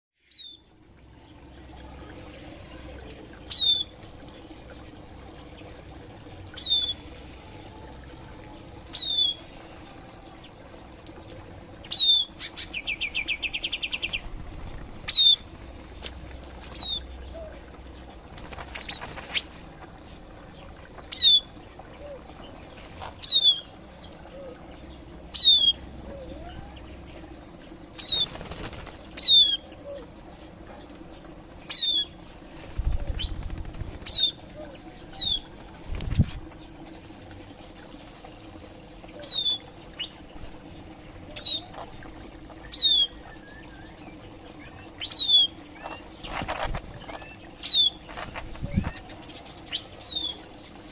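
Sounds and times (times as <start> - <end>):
songbirds calling: 0.2 - 50.9
wing flutter: 13.5 - 17.0, 18.2 - 21.4, 22.6 - 23.6, 25.4 - 29.6, 30.9 - 38.5, 45.3 - 49.6.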